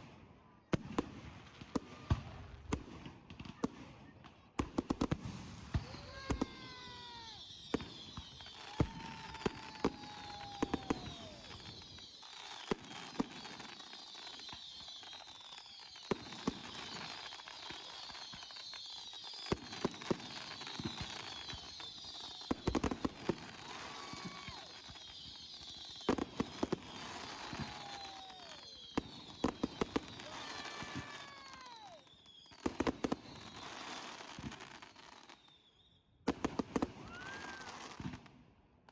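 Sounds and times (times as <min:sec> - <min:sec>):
fireworks bangs: 0:04.6 - 0:35.4, 0:36.2 - 0:38.3
falling whistles: 0:05.8 - 0:22.6, 0:23.6 - 0:36.2, 0:37.1 - 0:37.9.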